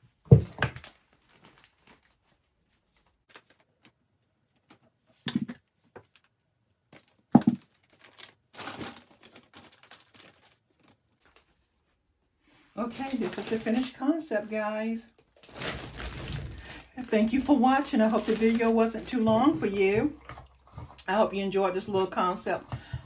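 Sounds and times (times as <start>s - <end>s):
plastic wrap crinkling: 0.7s - 4.0s, 7.6s - 11.9s, 12.8s - 23.0s.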